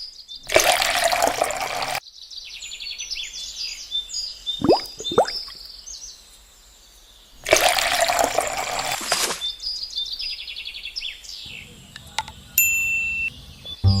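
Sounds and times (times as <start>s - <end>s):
water splashing: 0.5s - 2.0s, 4.6s - 5.6s, 7.4s - 9.5s.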